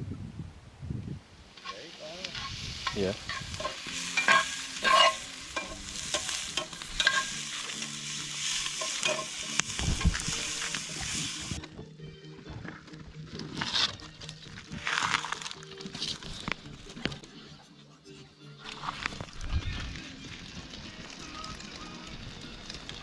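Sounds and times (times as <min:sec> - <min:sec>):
food sizzling in a pan: 0:01.6 - 0:11.6, 0:19.8 - 0:23.0
utensil scraping a pan: 0:01.6 - 0:11.6, 0:13.4 - 0:14.1.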